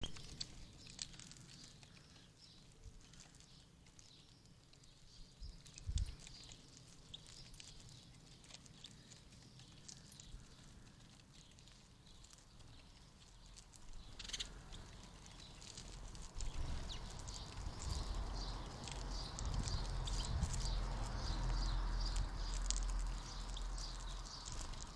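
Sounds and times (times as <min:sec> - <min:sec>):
finches chirping: 0:08.8 - 0:24.9.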